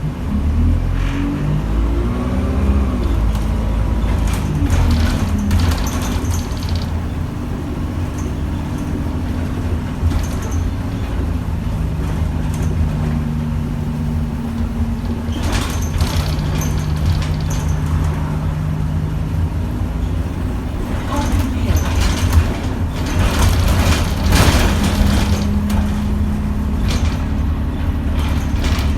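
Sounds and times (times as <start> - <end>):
bus diesel engine droning: 0.0 - 28.9
short clicking rattles: 4.1 - 11.2, 14.5 - 18.4.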